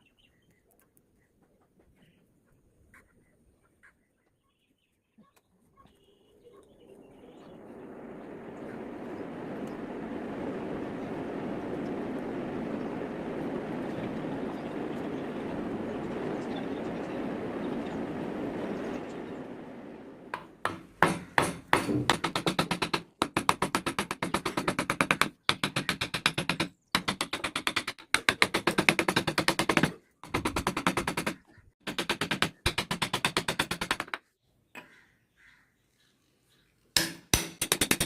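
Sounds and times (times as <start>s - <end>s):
steady rushing noise: 6.8s - 21.1s
rapid sharp taps: 20.3s - 34.2s.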